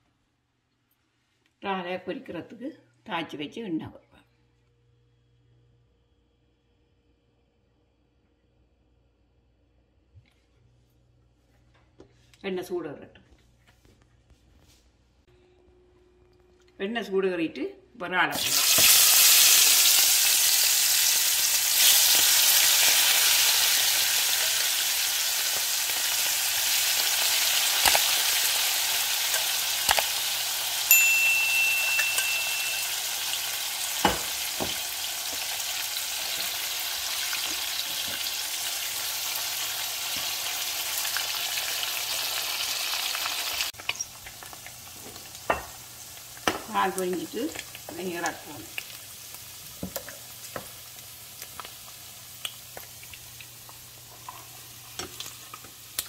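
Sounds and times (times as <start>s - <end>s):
shrimp sizzling in hot oil: 18.4s - 56.0s.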